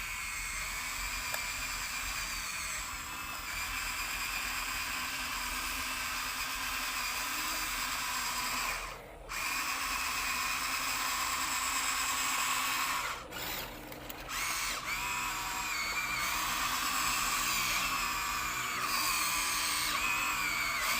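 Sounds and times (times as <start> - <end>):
toy electric motor whining: 0.0 - 20.9.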